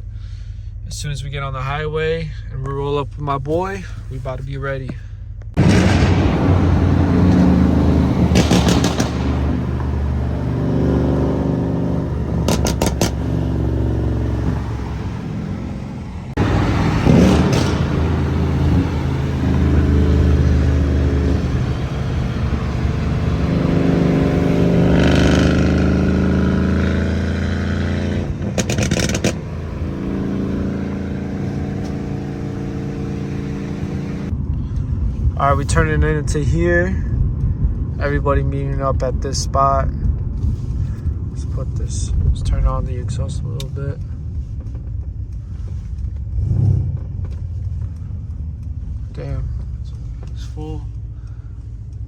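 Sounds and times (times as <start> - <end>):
exhaust cracks: 3.5 - 52.0
car engine revving: 5.6 - 34.3, 41.4 - 52.0.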